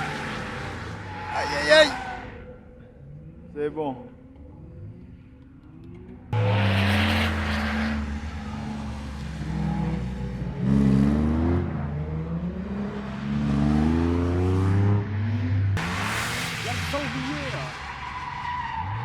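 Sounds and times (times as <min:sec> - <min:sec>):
tyre screech: 0:00.0 - 0:02.6.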